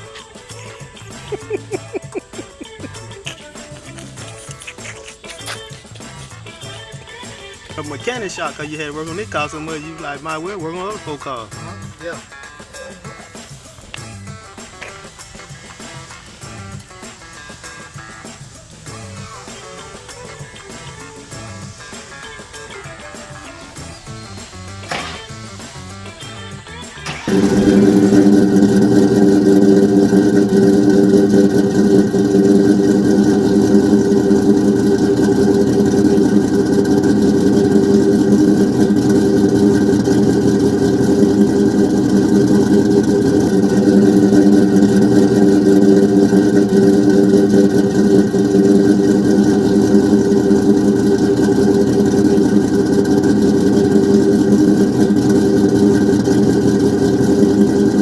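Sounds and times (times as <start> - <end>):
loud car engine idling: 5.8 - 12.6, 23.7 - 58.0.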